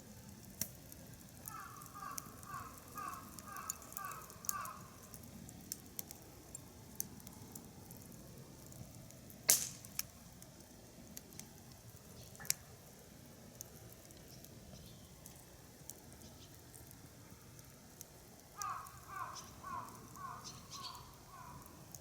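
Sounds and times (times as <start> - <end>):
wood fire crackling: 0.0 - 22.0
sharp loud pop: 9.5 - 9.8.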